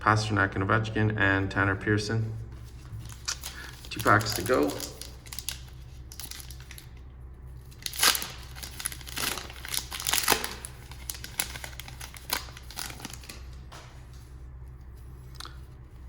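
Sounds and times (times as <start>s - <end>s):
faint low hum: 0.0s - 16.0s
wrapper tearing and crinkling: 3.0s - 7.0s, 7.6s - 13.6s.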